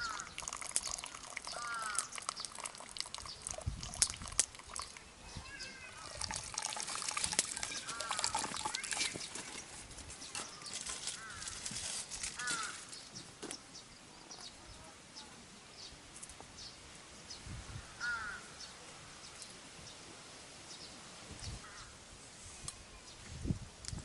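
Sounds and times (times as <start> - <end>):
crow cawing: 0.0 - 0.4, 1.5 - 2.1, 7.7 - 8.9, 11.1 - 11.6, 12.4 - 12.9, 17.9 - 18.6
rustling: 7.4 - 13.3.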